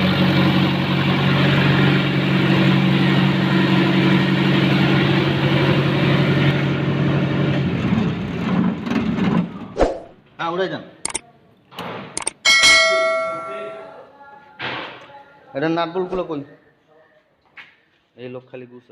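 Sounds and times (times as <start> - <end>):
diesel generator running: 0.0 - 9.6.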